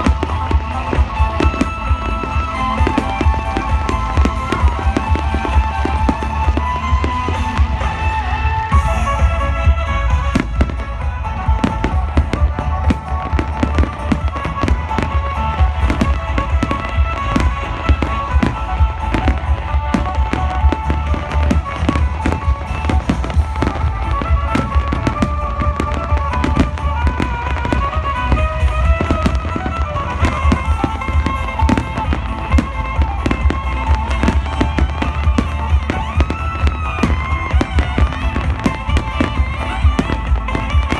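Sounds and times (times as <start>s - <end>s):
fireworks bangs and pops: 0.0s - 40.9s
music playing: 0.0s - 40.9s.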